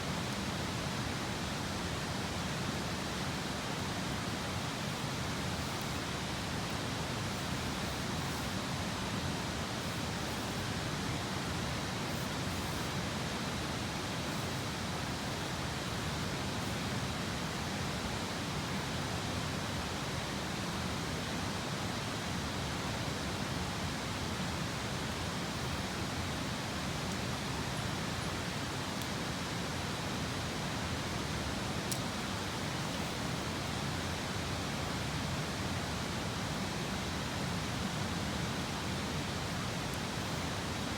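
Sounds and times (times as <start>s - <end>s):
campfire crackling: 0.2s - 17.6s.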